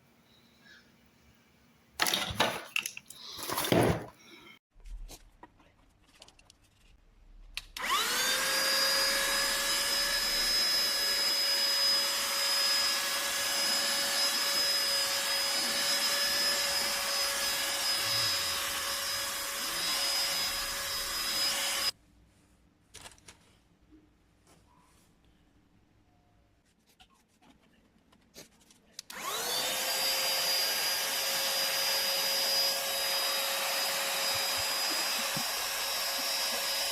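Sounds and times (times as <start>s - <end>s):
handheld vacuum cleaner whine: 7.8s - 22.0s, 29.1s - 36.9s.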